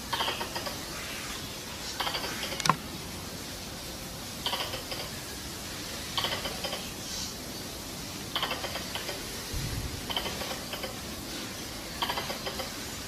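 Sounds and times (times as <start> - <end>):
squirrel chattering call: 0.0 - 1.0, 1.9 - 2.8, 4.4 - 5.2, 6.2 - 7.3, 8.3 - 9.4, 10.0 - 11.0, 11.9 - 12.8
steady hiss: 0.0 - 13.0.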